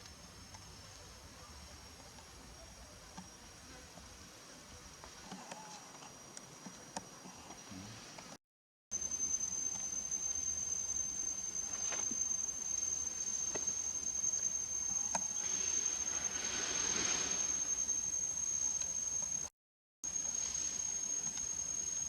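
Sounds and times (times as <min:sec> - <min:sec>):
high-pitched insect call: 0:09.0 - 0:19.5, 0:20.1 - 0:22.0
rustling hiss: 0:09.7 - 0:19.4.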